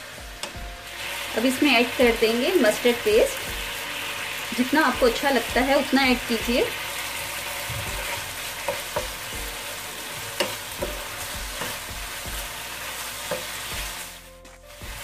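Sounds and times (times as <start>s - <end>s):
chicken sizzling in a frying pan: 0.0s - 15.0s
wooden spatula scraping a pan: 6.1s - 15.0s.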